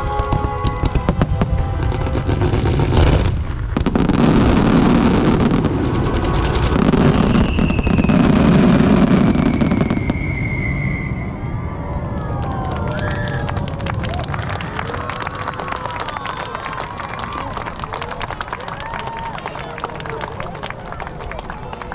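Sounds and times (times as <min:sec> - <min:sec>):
fireworks booming and crackling: 0:00.0 - 0:19.2
long falling whistle: 0:06.8 - 0:13.6.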